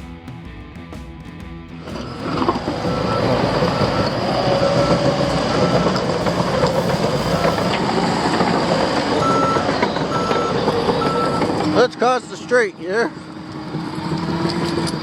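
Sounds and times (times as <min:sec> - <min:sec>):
diesel machinery rattling and clanking: 0:01.8 - 0:12.7
reversing alarm beeping: 0:01.9 - 0:12.0.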